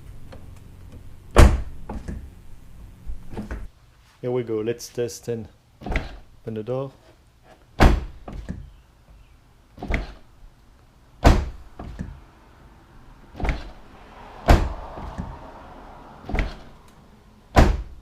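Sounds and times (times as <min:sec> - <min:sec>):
car door thuds: 0:01.3 - 0:02.3, 0:07.8 - 0:08.7, 0:11.2 - 0:12.2, 0:13.3 - 0:13.8, 0:14.4 - 0:15.4, 0:16.2 - 0:16.7, 0:17.5 - 0:18.0
car door latch knocks: 0:11.2 - 0:12.2, 0:17.5 - 0:18.0.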